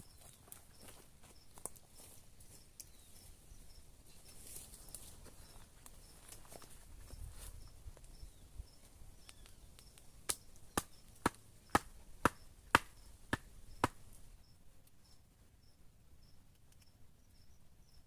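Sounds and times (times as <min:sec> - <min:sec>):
blade chopping into wood: 0:10.8 - 0:14.0.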